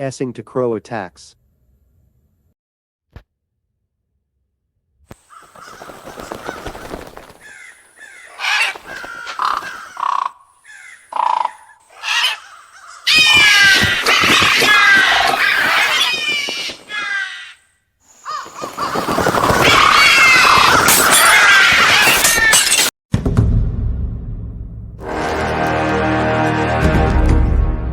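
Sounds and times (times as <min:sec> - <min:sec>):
crows cawing: 0:05.2 - 0:22.7.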